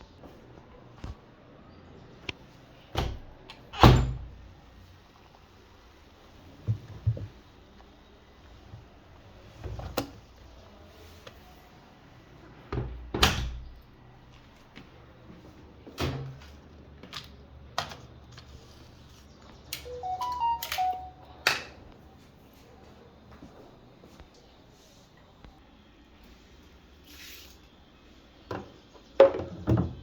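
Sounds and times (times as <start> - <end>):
electronic beeps: 19.8 - 21.4.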